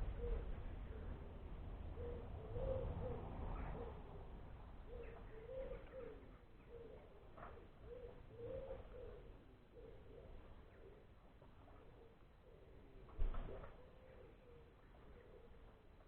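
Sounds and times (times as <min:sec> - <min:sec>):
pigeon cooing: 0:04.9 - 0:11.0.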